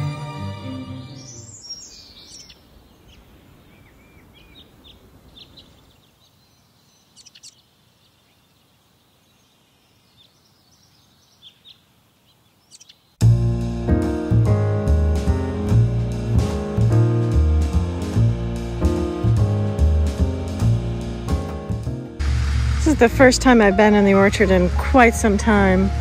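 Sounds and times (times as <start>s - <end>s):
faint outdoor background noise: 0.0s - 13.2s
small birds chirping: 1.1s - 13.2s.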